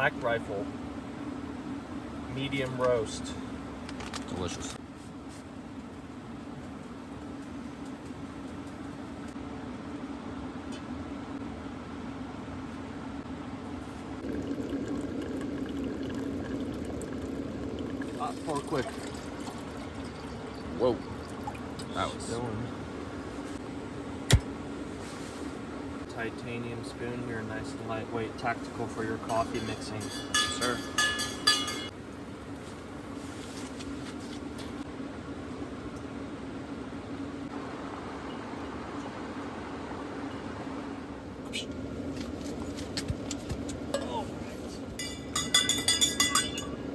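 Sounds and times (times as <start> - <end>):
steady low hum: 0.0 - 46.9
water bubbling: 14.2 - 22.0
spoon clinking against metal mug: 29.3 - 31.9, 45.0 - 46.8.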